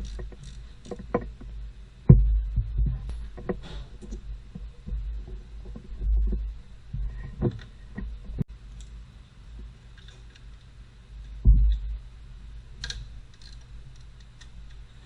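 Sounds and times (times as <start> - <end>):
dull thumps and knocks: 2.1 - 3.8, 4.5 - 8.4.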